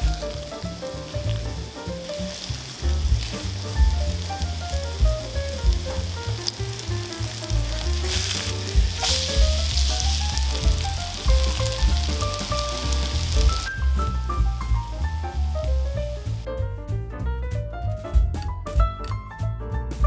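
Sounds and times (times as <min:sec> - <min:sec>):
pancakes sizzling in oil: 0:00.0 - 0:13.9
background music: 0:00.0 - 0:20.0.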